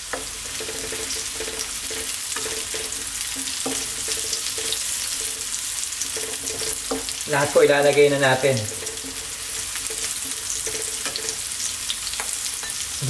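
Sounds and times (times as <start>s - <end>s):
spatula scraping and tapping pan: 0.0s - 12.9s
garlic sizzling in hot oil: 0.0s - 13.0s.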